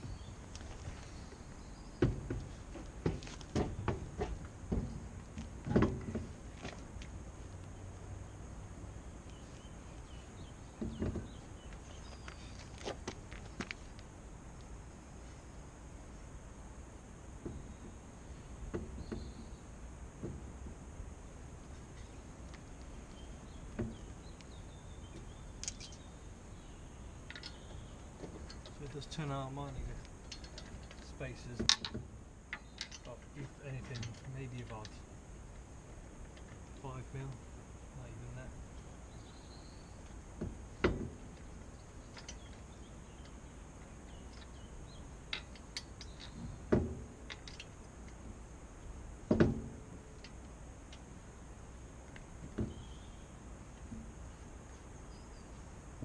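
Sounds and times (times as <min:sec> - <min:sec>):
heavy clunks: 0:02.0 - 0:06.8, 0:10.7 - 0:11.5, 0:49.2 - 0:50.0
faint bird chirps: 0:09.0 - 0:12.8, 0:21.9 - 0:29.2, 0:38.0 - 0:40.2, 0:52.6 - 0:53.4
small metallic clicks and clinks: 0:27.3 - 0:27.7, 0:30.2 - 0:31.1, 0:32.5 - 0:35.0.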